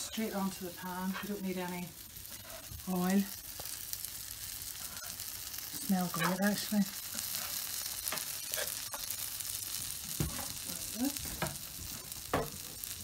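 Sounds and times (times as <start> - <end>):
food sizzling on grill pan: 0.0 - 13.0.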